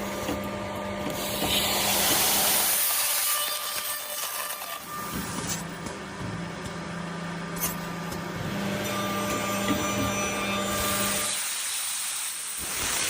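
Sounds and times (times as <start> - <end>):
woodworking machine motor hum: 0.0 - 11.4
machine hiss: 10.8 - 13.0.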